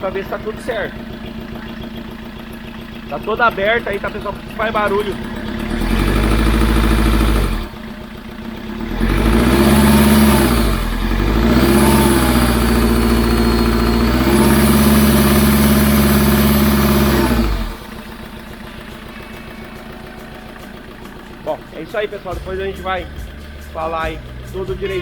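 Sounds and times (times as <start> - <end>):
vehicle engine revving: 0.0 - 25.0.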